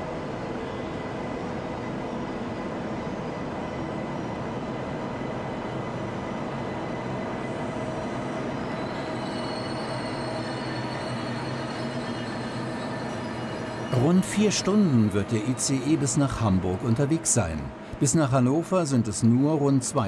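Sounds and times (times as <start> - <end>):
train rumbling: 4.6 - 20.0
high thin squealing tones: 8.6 - 16.2.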